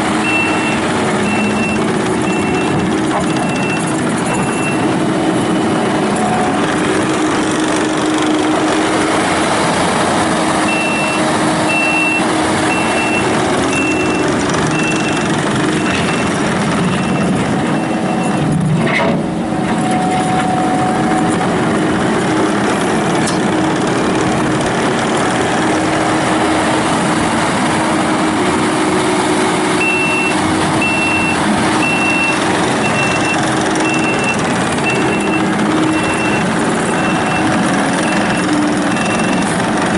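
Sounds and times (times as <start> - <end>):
diesel engine running: 0.0 - 39.9
backup alarm beeping: 0.2 - 5.6, 10.7 - 15.2, 15.8 - 18.4, 29.8 - 39.4.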